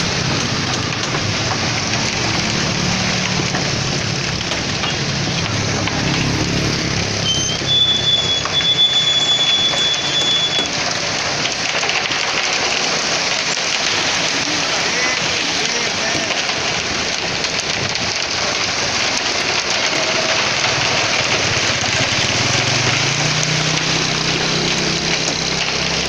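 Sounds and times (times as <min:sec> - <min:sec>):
concrete mixer truck engine: 0:00.0 - 0:26.0
steady rushing hiss: 0:10.4 - 0:26.0.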